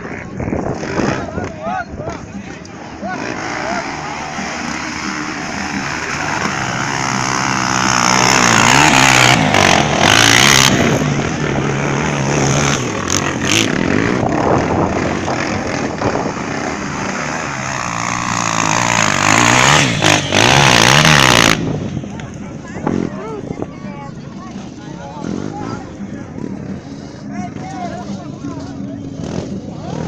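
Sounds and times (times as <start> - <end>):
dirt bike engine revving: 0.0 - 1.5, 2.1 - 22.0, 29.0 - 30.0
wind on microphone: 0.0 - 2.5, 6.2 - 28.0.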